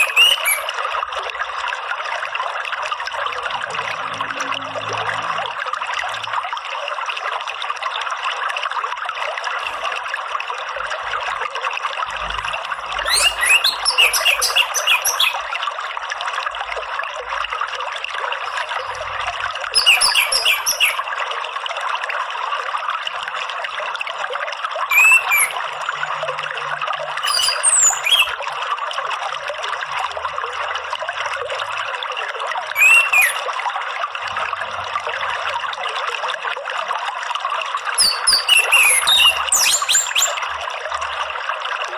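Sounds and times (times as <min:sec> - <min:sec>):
bird whistling song: 0:00.0 - 0:00.8, 0:13.0 - 0:15.4, 0:19.7 - 0:21.0, 0:24.9 - 0:25.8, 0:27.2 - 0:28.4, 0:32.7 - 0:33.4, 0:37.9 - 0:40.4
trickle of running water: 0:00.0 - 0:41.9.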